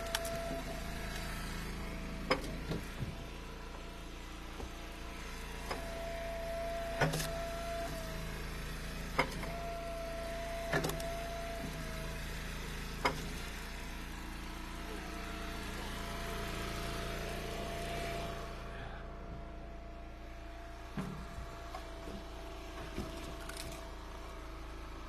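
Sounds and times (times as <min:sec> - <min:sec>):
firewood cracking: 0:00.0 - 0:00.4
hydraulic whine: 0:00.0 - 0:25.0
log splitter running: 0:00.0 - 0:25.0.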